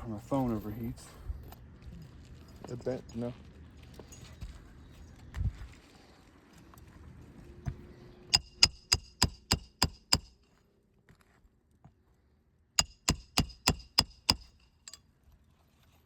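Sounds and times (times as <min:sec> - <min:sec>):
hammer driving nail through shingles: 0:08.3 - 0:10.4, 0:12.8 - 0:15.0.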